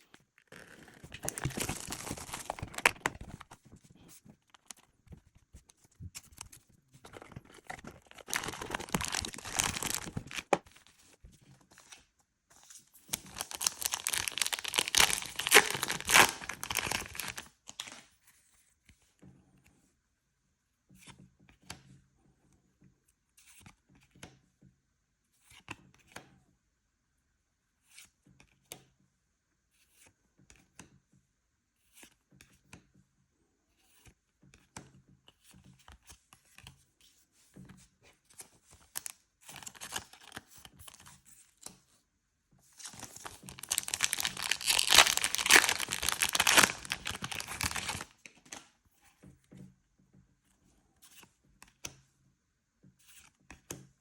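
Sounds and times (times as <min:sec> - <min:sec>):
packaging tearing and crinkling: 0:00.6 - 0:03.4, 0:07.1 - 0:10.7, 0:13.1 - 0:18.0, 0:38.9 - 0:40.4, 0:42.8 - 0:48.1
packaging rustling and clicking: 0:00.6 - 0:03.6, 0:07.1 - 0:10.9, 0:13.1 - 0:18.0, 0:38.8 - 0:41.2, 0:42.8 - 0:48.6.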